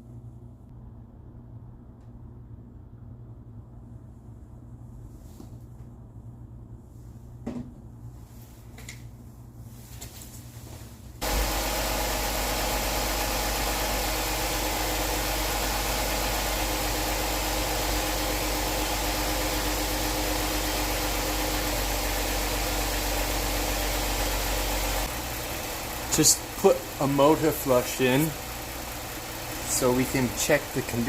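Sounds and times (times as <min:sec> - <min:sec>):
car engine idling: 0:11.2 - 0:31.0.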